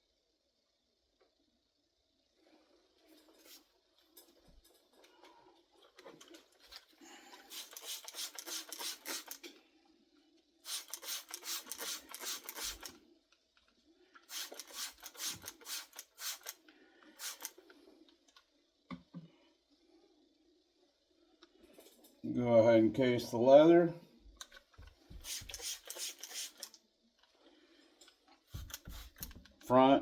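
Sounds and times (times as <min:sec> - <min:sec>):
tool scraping leather: 0:28.5 - 0:29.4.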